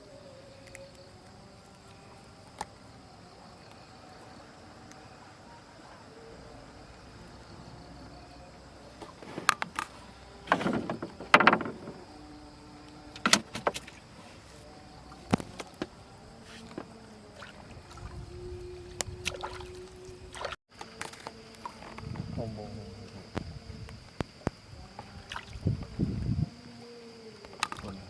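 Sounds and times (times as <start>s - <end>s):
knocks on wooden boat: 10.5s - 12.0s
water splashing: 16.6s - 21.8s, 25.2s - 25.8s.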